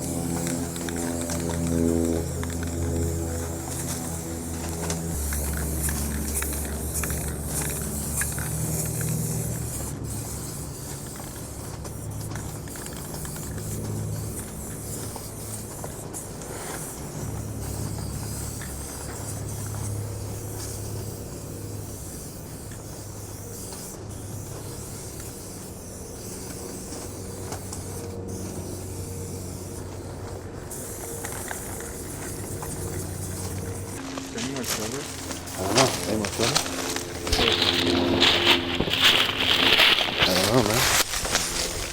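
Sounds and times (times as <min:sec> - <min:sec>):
low hum: 0:00.0 - 0:16.4, 0:26.6 - 0:41.9
spray-paint cans hissing: 0:00.0 - 0:41.9.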